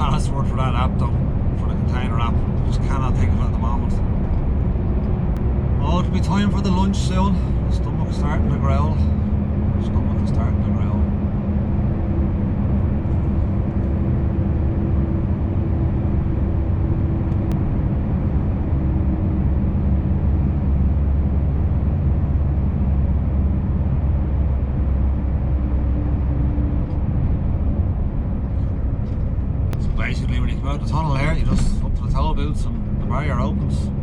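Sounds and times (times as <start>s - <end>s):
truck engine drone from cab: 0.0s - 34.0s.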